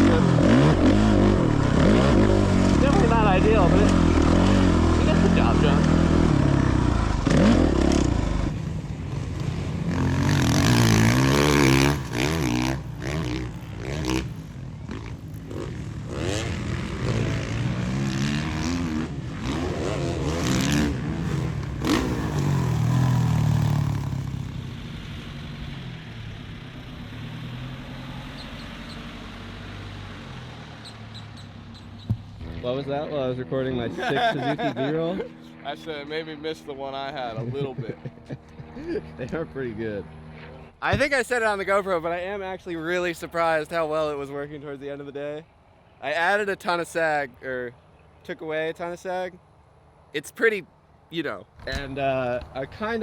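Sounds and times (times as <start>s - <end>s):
dirt bike engine revving: 0.0s - 35.9s.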